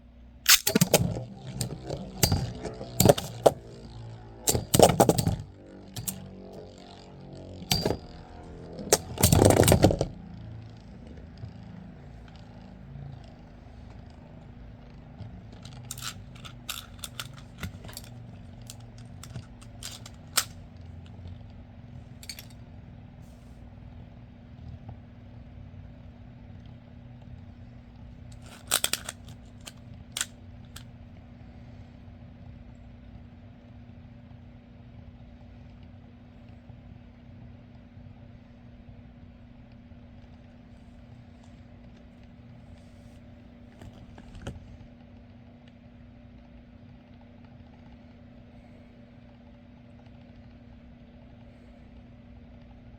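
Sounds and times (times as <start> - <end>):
spinning tops whirring hum: 0.4 - 23.4, 26.0 - 31.5
sharp clicks of tops striking: 0.5 - 10.8
spinning tops clattering: 0.5 - 11.2, 15.4 - 20.6, 28.4 - 30.8.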